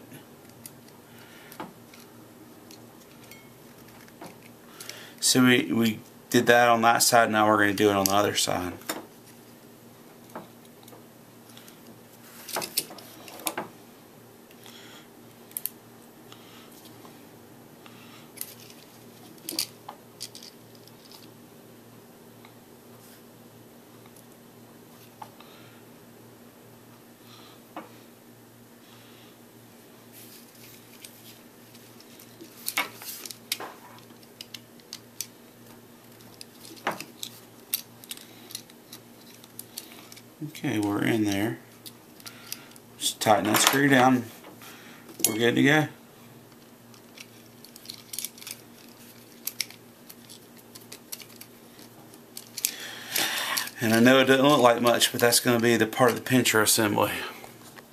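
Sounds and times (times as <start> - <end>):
low steady hum: 0.0 - 57.9
small plastic parts clicking: 31.7 - 35.3, 36.1 - 40.2, 46.9 - 53.7.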